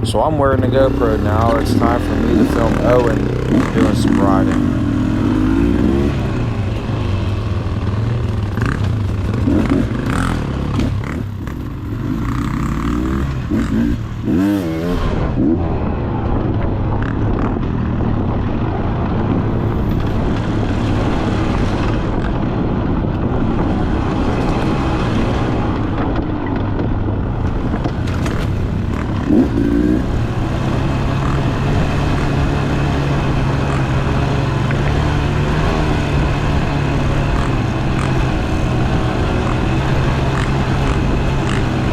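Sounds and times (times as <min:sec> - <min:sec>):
dirt bike engine revving: 0:00.0 - 0:16.0, 0:27.3 - 0:41.9.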